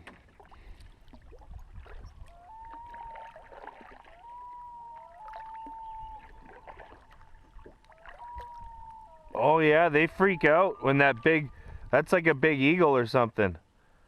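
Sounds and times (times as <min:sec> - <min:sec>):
loons wailing: 0:02.2 - 0:12.4.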